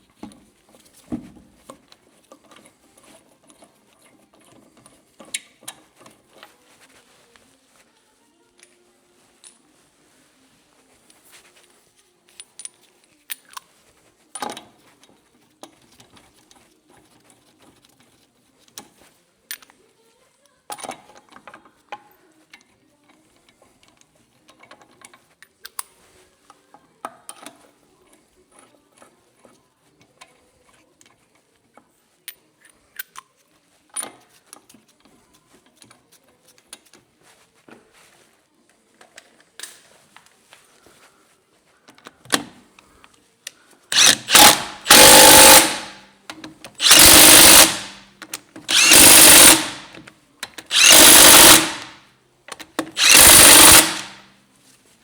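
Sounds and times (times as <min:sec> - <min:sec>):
metal tools clicking and clanking: 0:44.0 - 0:46.0, 0:48.7 - 0:50.0.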